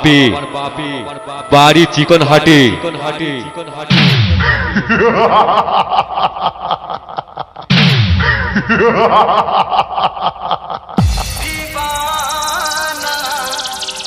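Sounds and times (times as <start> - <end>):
deep falling bass drop: 11.0 - 12.6
electronic music: 11.0 - 14.0
falling pitch sweeps stuttering: 11.0 - 14.0.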